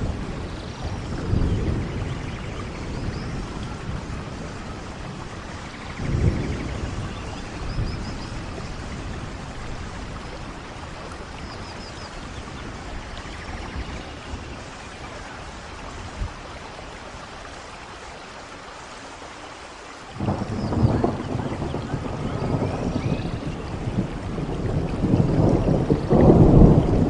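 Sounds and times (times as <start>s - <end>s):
thunder rumbling: 0.0s - 17.3s, 20.1s - 27.0s
steady rainfall: 0.0s - 27.0s.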